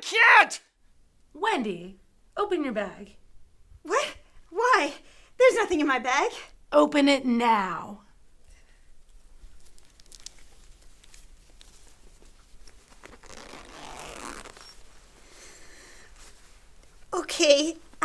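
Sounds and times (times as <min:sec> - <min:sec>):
fabric rustling: 0:08.6 - 0:18.0
zip opening: 0:12.6 - 0:15.0.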